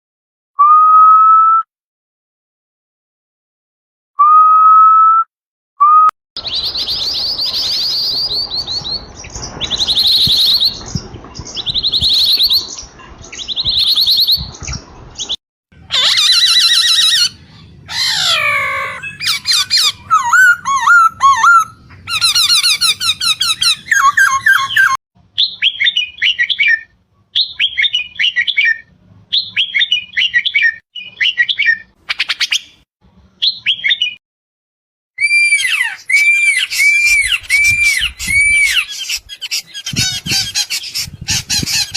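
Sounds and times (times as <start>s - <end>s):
songbirds singing: 6.4s - 32.8s.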